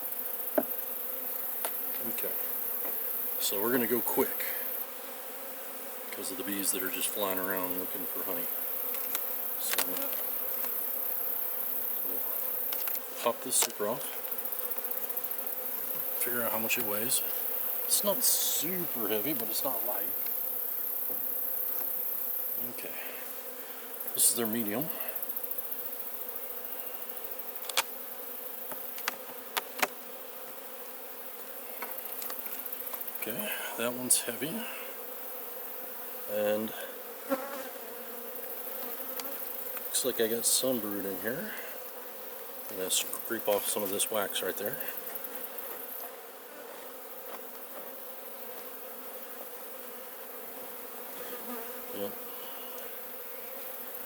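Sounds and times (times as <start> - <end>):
honeybees buzzing: 0.0 - 54.0
sharp clicks and knocks: 27.6 - 27.9, 28.7 - 29.9.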